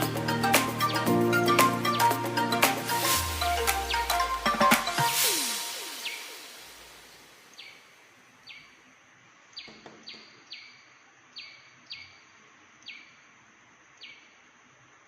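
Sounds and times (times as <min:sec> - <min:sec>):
high-pitched hiss: 0:00.0 - 0:08.8
bird chirping: 0:00.0 - 0:13.3, 0:13.9 - 0:14.4.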